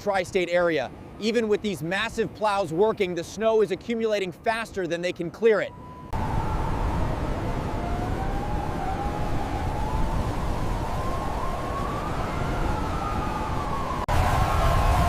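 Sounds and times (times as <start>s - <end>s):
emergency siren wailing: 4.2s - 15.0s.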